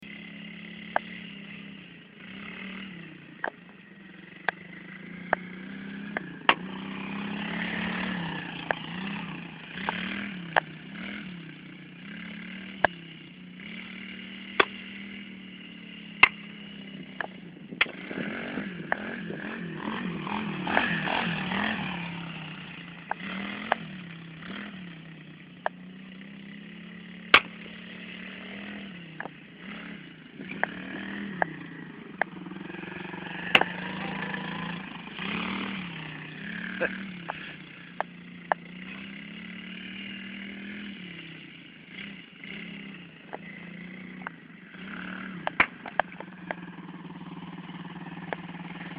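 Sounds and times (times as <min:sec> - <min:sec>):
motorbike engine revving: 0:00.0 - 0:48.9
sharp clicks: 0:16.2 - 0:16.4.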